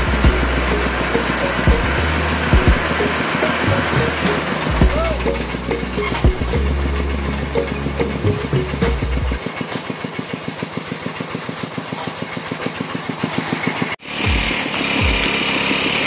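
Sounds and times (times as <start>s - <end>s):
machine with high whine: 0.0s - 10.0s, 14.0s - 16.0s
engine idling with rapid pulses: 0.0s - 16.0s.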